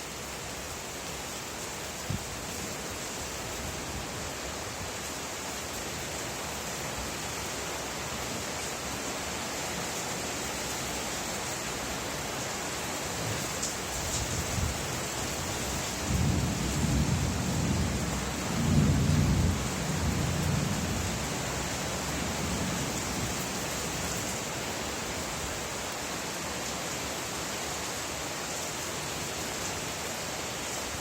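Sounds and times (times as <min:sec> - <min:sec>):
steady rain falling: 0:00.0 - 0:31.0
low rumble of thunder: 0:16.0 - 0:21.5.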